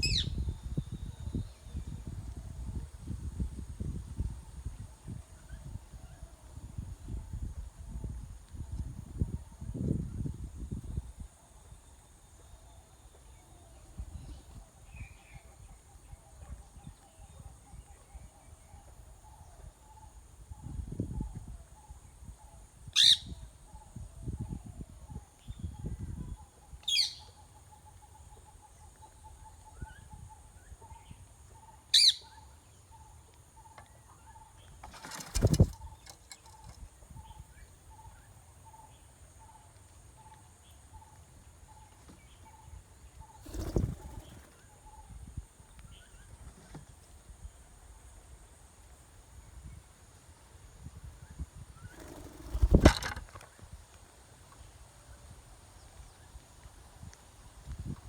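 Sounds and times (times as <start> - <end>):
parakeet chicks calling: 0.0 - 0.3, 23.0 - 23.3, 32.0 - 32.2
low thuds and rustles: 34.8 - 36.7, 52.3 - 53.4.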